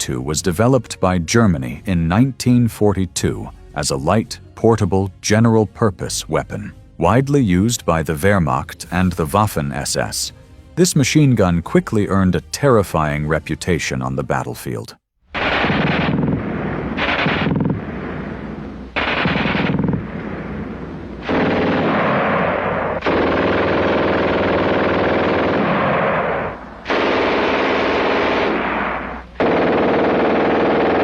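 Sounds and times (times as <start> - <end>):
machine gun firing bursts: 15.4 - 20.5, 21.2 - 31.0.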